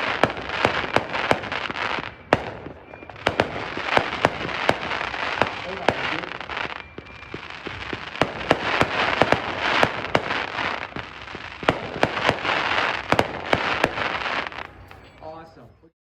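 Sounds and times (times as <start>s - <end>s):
firework bangs: 0.0s - 15.9s.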